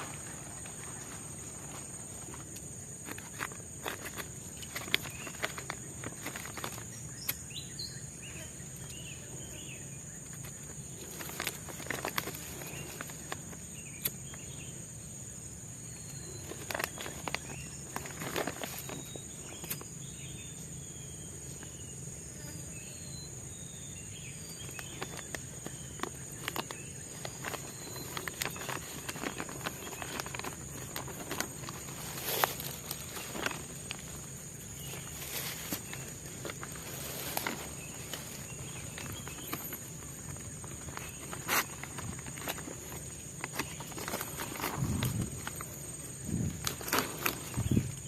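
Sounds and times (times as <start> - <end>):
bird chirps: 15.8 - 48.0.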